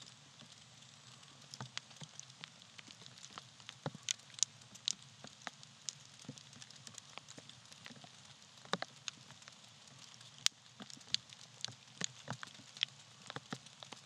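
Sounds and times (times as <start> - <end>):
campfire crackling and popping: 0.0 - 14.0
soft steady fire hiss: 0.0 - 14.0.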